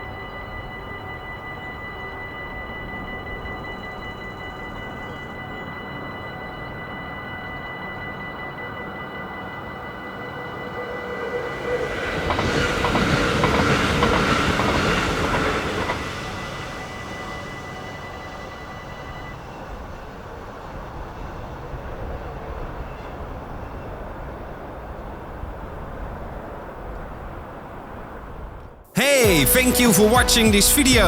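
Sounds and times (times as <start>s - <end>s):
level crossing warning bell: 0.0s - 25.5s, 29.0s - 31.0s
train passing: 0.0s - 31.0s
wheels clicking over rail joints: 12.1s - 17.0s.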